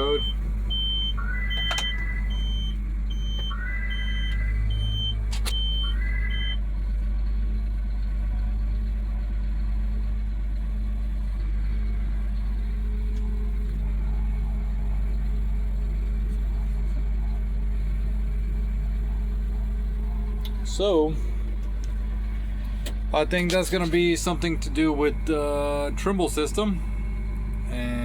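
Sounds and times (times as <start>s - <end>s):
high warning beeps: 0.0s - 6.6s
rising electronic chirp: 0.0s - 6.6s
tractor engine idling: 0.0s - 28.0s.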